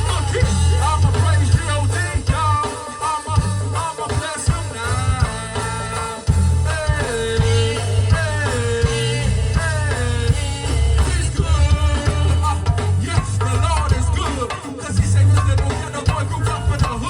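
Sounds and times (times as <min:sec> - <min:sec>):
bass and drums groove: 0:00.0 - 0:17.0
live gospel band playing: 0:00.0 - 0:17.0.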